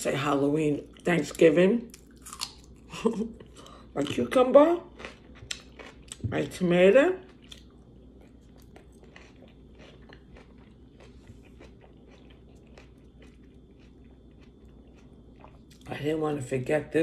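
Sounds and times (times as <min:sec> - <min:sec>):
faint close-up chewing: 0:04.9 - 0:06.3, 0:07.2 - 0:15.9.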